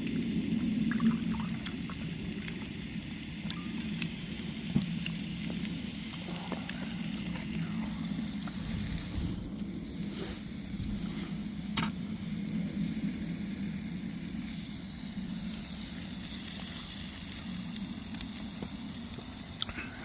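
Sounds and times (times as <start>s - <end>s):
food sizzling in a pan: 7.0s - 20.0s.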